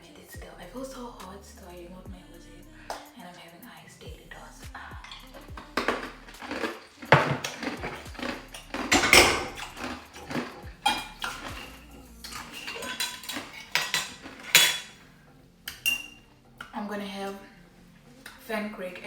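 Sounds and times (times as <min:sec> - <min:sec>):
dishes and cutlery clattering: 0:05.7 - 0:15.0, 0:15.7 - 0:16.2.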